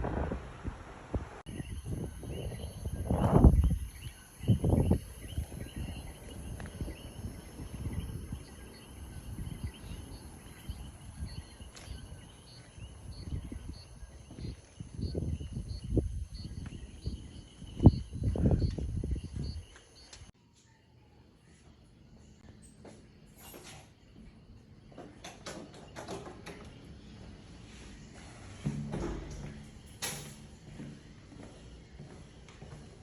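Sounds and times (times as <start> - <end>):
wind rumbling on microphone: 0.0 - 20.3.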